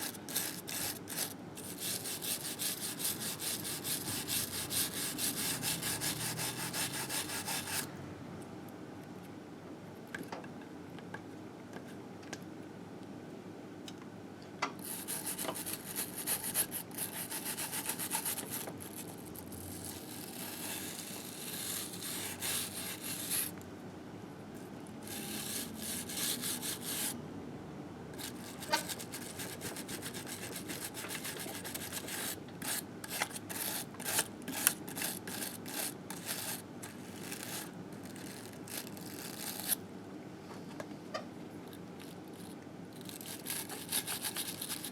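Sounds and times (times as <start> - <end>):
hand scrubbing grime off metal: 0.0 - 7.8.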